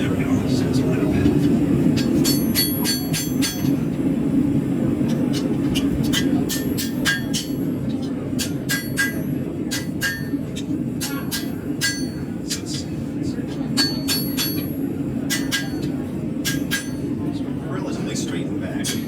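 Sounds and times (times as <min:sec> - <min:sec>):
hammer striking steel on anvil: 0:02.0 - 0:03.9, 0:06.0 - 0:07.7, 0:08.4 - 0:10.4, 0:11.0 - 0:12.7, 0:13.8 - 0:17.1.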